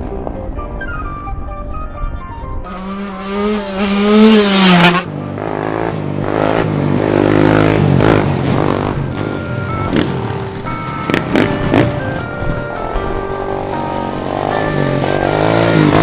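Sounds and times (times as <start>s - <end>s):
small engine revving: 2.7s - 12.8s, 13.6s - 16.0s
second engine: 2.7s - 16.0s.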